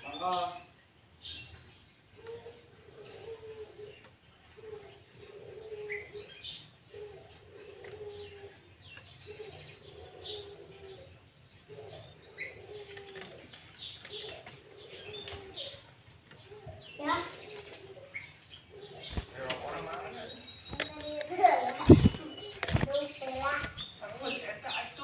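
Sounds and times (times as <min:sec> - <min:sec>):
birds chirping and whistling: 0:00.0 - 0:25.0
low cooing: 0:02.2 - 0:15.8.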